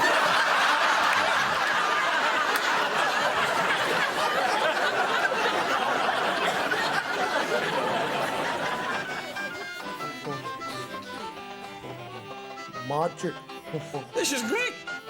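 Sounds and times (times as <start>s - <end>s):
crowd laughing: 0.0s - 11.4s.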